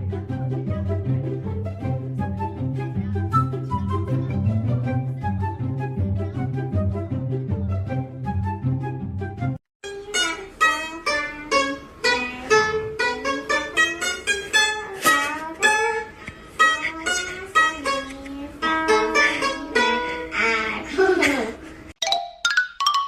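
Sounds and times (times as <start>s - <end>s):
plucked string instrument music: 0.0s - 20.8s.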